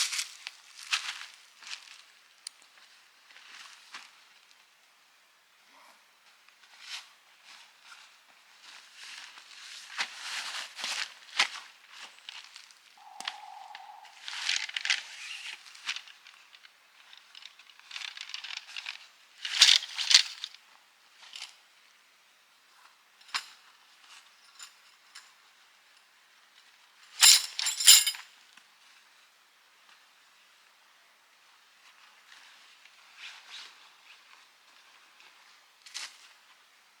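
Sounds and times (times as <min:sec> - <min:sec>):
rustling of camping gear: 0:06.5 - 0:21.5
metallic clinks and jingles: 0:27.2 - 0:28.2.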